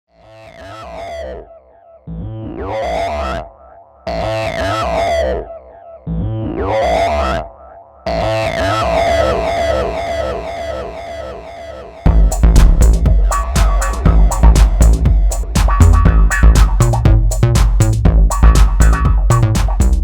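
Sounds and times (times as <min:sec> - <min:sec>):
electronic synthesizer music: 0:08.1 - 0:20.0.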